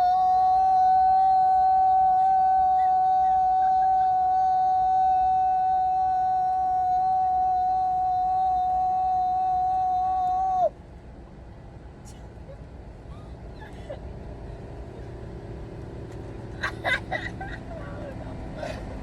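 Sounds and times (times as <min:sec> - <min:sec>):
person shouting a long high note: 0:00.0 - 0:10.7.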